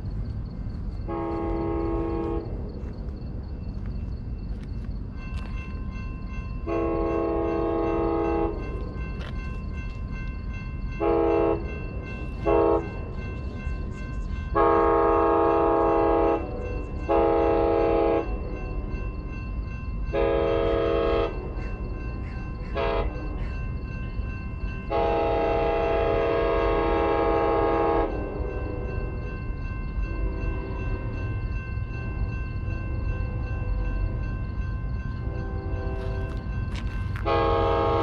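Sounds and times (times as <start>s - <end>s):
train rumbling: 0.0s - 38.0s
locomotive air horn blasts: 1.1s - 2.5s, 6.6s - 8.6s, 11.0s - 11.7s, 12.4s - 13.0s, 14.5s - 18.4s, 20.1s - 21.5s, 22.8s - 23.2s, 24.9s - 28.6s, 35.3s - 36.4s, 37.2s - 38.0s.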